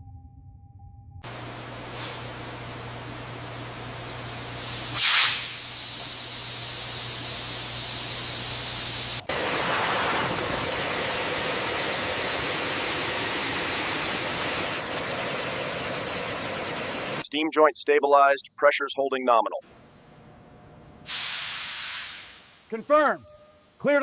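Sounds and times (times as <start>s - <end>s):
steady low hum: 1.0s - 17.2s, 19.6s - 21.1s
steam hissing from pipe joint: 1.3s - 17.2s, 21.1s - 23.9s.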